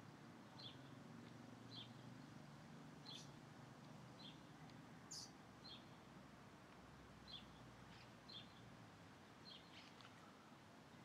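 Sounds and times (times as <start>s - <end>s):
small bird chirping: 3.0s - 3.4s, 5.1s - 5.9s.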